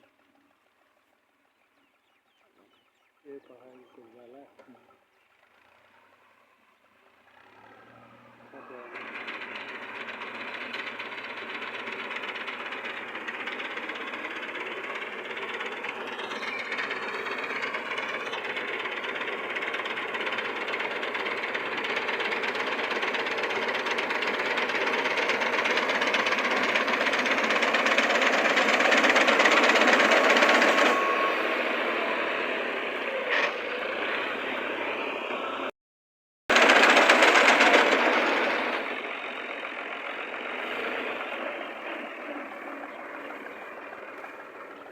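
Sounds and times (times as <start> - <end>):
tractor engine clattering: 8.2 - 34.2, 36.5 - 44.9.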